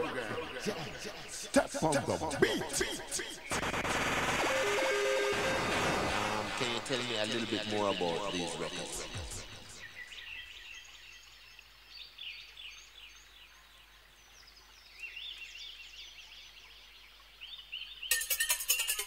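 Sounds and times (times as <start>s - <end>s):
birds chirping: 0.0s - 4.3s, 6.2s - 19.0s
ambient music: 0.0s - 9.9s.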